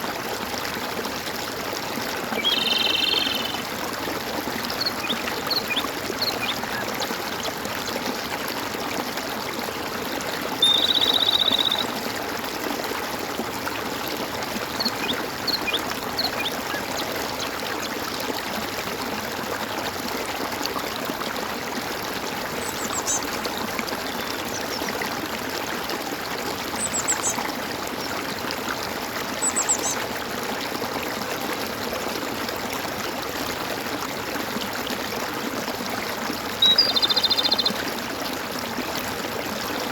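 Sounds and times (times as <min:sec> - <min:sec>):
water gurgling and trickling: 0:00.0 - 0:39.9
loud rapid bird trill: 0:10.6 - 0:11.9
short high bird chirps: 0:10.6 - 0:11.9.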